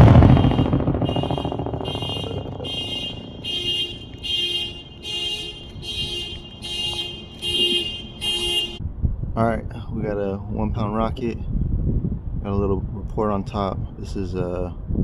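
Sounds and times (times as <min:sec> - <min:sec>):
rumble of rocket explosion: 0:00.0 - 0:04.4
car alarm beeping: 0:00.0 - 0:08.8.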